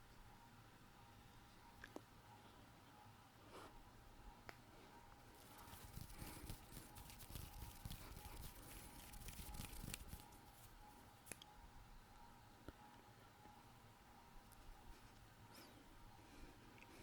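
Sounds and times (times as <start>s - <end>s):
skin rubbing against microphone: 5.4s - 10.8s.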